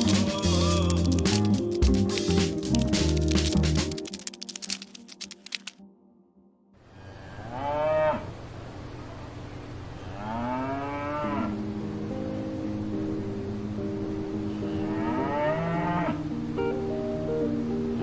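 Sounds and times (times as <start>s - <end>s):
cow mooing: 10.2s - 11.6s, 14.9s - 16.2s.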